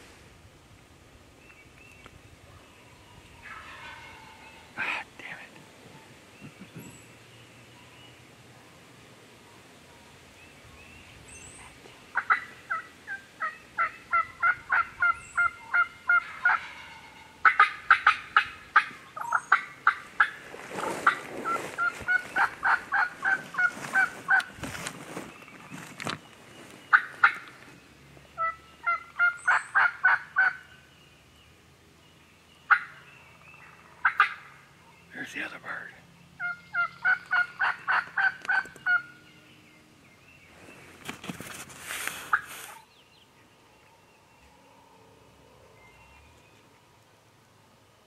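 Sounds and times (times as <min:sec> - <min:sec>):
turkey yelping: 0:03.4 - 0:04.7, 0:12.1 - 0:20.4, 0:21.0 - 0:24.5, 0:26.9 - 0:27.5, 0:28.4 - 0:30.7, 0:32.7 - 0:33.0, 0:34.0 - 0:34.6, 0:36.4 - 0:39.1.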